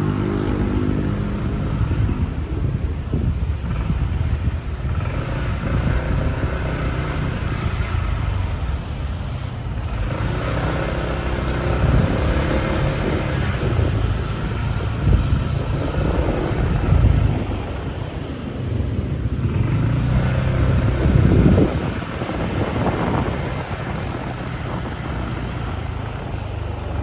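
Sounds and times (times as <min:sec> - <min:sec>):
road traffic: 0:00.0 - 0:27.0
wind rumbling on microphone: 0:00.0 - 0:27.0.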